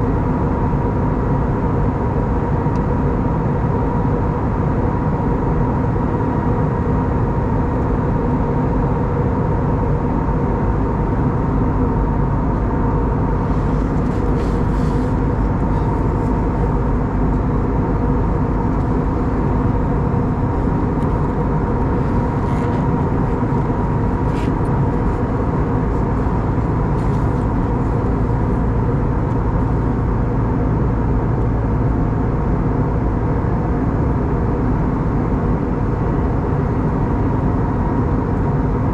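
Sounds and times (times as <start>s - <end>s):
aircraft cabin drone: 0.0s - 38.9s
steady hums: 10.8s - 31.9s.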